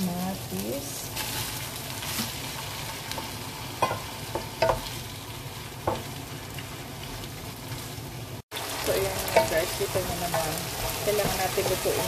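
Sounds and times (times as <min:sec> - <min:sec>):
vegetables sizzling in hot oil: 0:00.0 - 0:12.0
spatula knocking and scraping pan: 0:03.1 - 0:05.0, 0:09.2 - 0:12.0.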